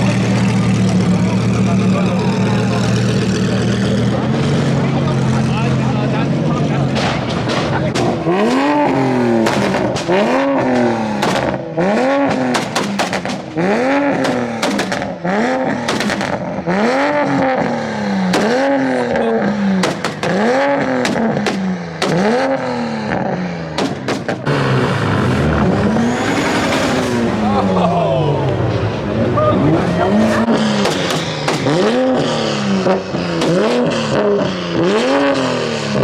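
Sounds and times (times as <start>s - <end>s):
car engine revving: 0.0s - 27.8s, 28.8s - 36.0s
sharp exhaust pops: 7.0s - 17.1s, 18.2s - 23.2s, 23.8s - 25.0s, 30.4s - 34.3s.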